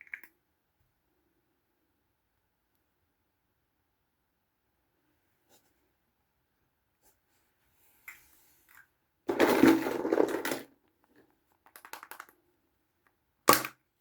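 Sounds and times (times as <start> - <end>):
plastic toys and packaging handled: 7.9 - 13.9.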